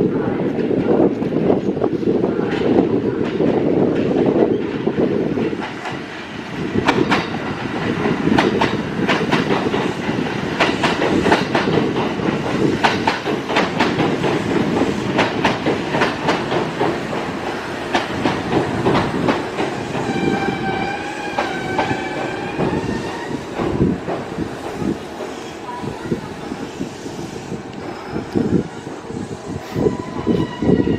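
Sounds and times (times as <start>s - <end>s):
train rumble: 0.0s - 30.9s
train wheels clicking over rail joints: 2.5s - 25.4s.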